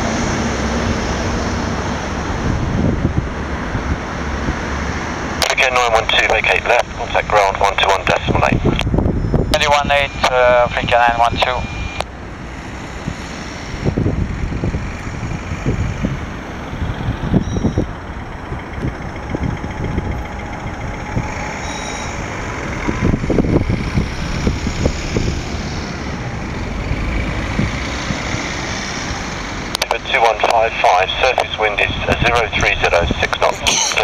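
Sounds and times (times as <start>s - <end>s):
jet aircraft rumble: 0.0s - 34.0s
faint high whine: 5.4s - 14.0s, 20.0s - 22.5s.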